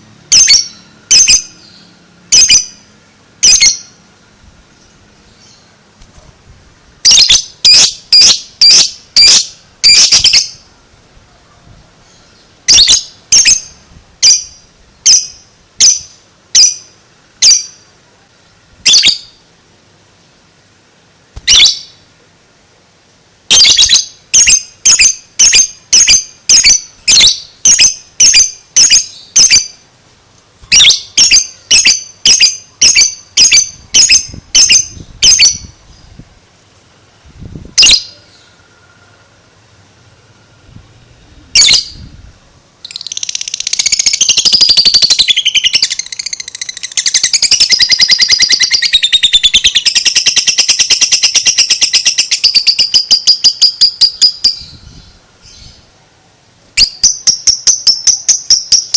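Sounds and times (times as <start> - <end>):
lovebird high-pitched chatter: 0.3 - 2.8, 3.4 - 4.0, 7.0 - 10.6, 12.0 - 17.8, 18.8 - 19.4, 21.4 - 22.0, 23.5 - 29.8, 30.7 - 36.1, 37.8 - 38.4, 41.5 - 42.1, 42.8 - 55.8, 56.8 - 58.9.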